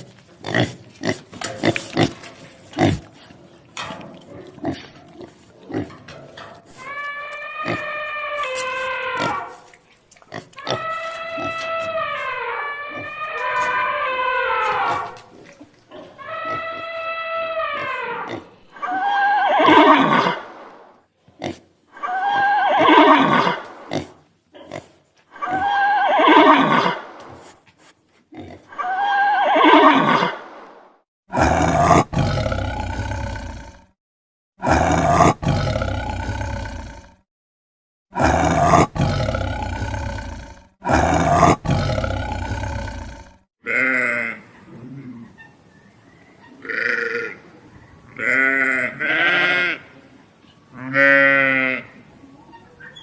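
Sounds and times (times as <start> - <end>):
rough animal calls: 6.6 - 9.7, 10.5 - 15.2, 15.9 - 20.5.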